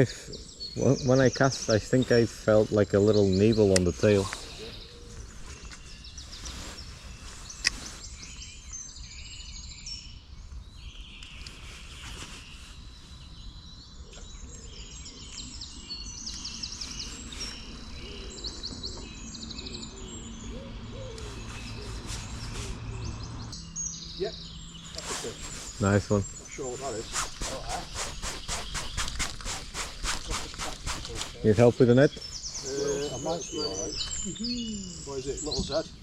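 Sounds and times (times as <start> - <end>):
outdoor background noise: 0.0 - 36.0
small birds chirping: 0.0 - 36.0.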